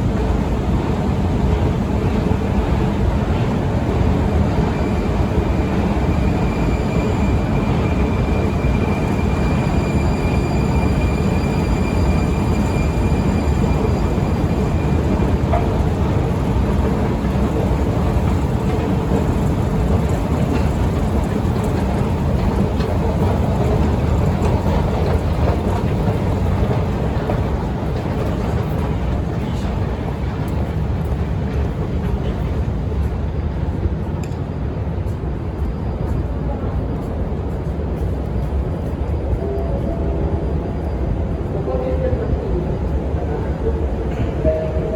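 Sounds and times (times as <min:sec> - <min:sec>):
metro train running: 0:00.0 - 0:44.9.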